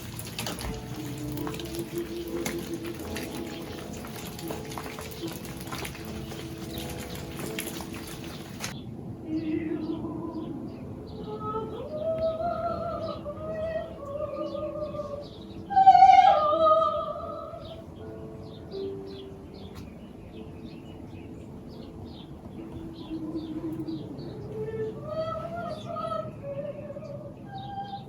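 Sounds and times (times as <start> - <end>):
woman singing slow music: 0.4 - 5.2, 9.2 - 18.2, 22.6 - 28.0.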